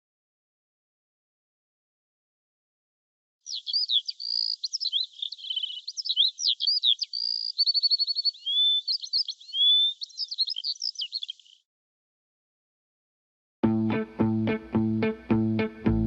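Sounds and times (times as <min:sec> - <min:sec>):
small songbird singing: 0:03.4 - 0:11.7.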